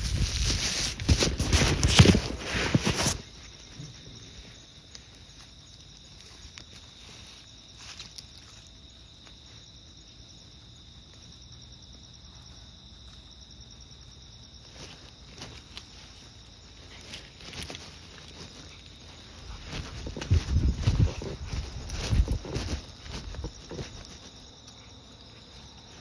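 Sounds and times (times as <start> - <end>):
footsteps: 0.0 - 5.5, 14.8 - 24.5
insects chirring: 0.0 - 26.0
wind buffeting microphone: 19.5 - 23.9.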